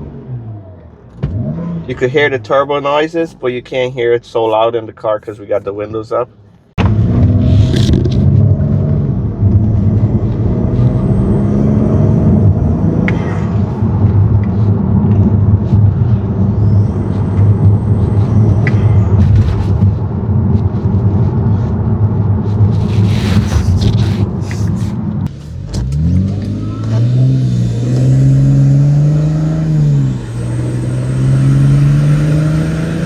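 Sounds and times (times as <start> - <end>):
road rumble: 0.0 - 33.0
low engine drone: 6.8 - 33.0.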